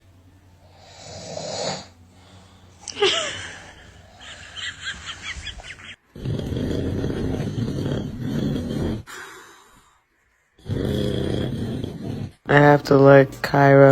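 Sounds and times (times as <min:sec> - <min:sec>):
person snoring loudly: 0:00.6 - 0:04.6, 0:06.1 - 0:09.8, 0:10.6 - 0:12.7.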